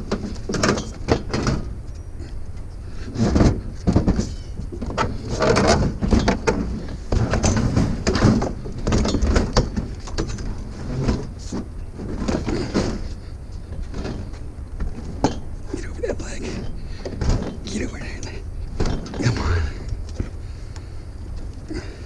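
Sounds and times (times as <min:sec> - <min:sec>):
low rumble: 0:14.4 - 0:22.0.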